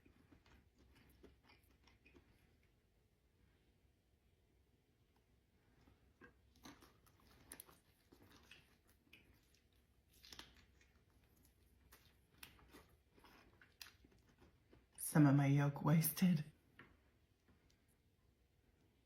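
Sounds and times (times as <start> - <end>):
person chewing: 0.0 - 3.0, 5.0 - 15.0.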